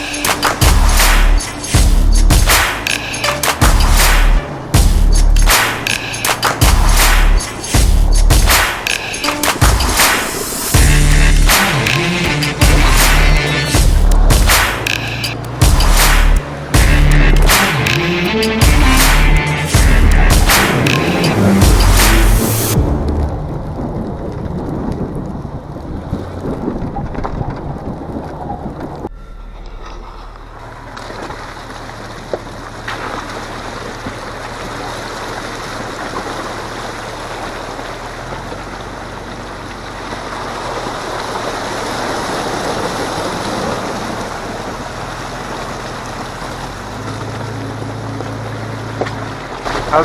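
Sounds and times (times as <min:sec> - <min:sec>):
car engine humming: 0:00.0 - 0:26.4, 0:28.0 - 0:50.0
tyres rushing over snow: 0:30.0 - 0:50.0.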